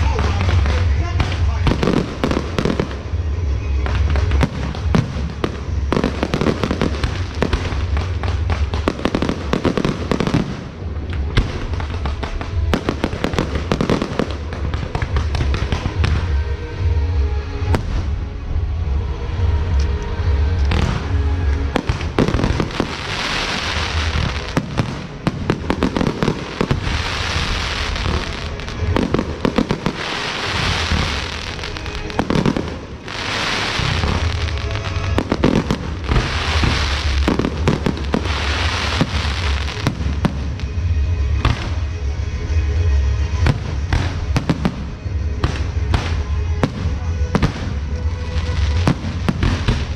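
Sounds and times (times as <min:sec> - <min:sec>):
firecrackers cracking: 0:00.0 - 0:16.5, 0:20.6 - 0:42.1, 0:43.3 - 0:49.9
music: 0:00.0 - 0:49.9.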